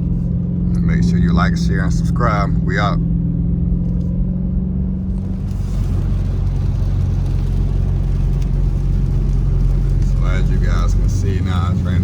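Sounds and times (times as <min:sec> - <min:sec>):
car engine idling: 0:05.0 - 0:12.0
rain and wet tyres hiss: 0:05.1 - 0:12.0.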